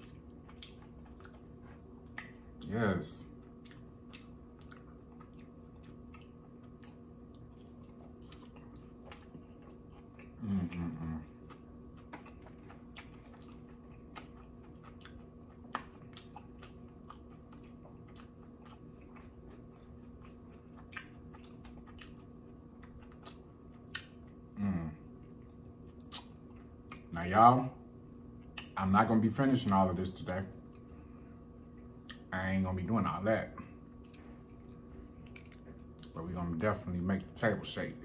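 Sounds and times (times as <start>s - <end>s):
wet chewing: 0.0s - 24.4s, 25.2s - 27.1s, 30.6s - 32.3s, 33.6s - 36.2s
faint steady hum: 0.0s - 38.0s
person humming mm: 10.4s - 11.2s, 24.6s - 25.0s.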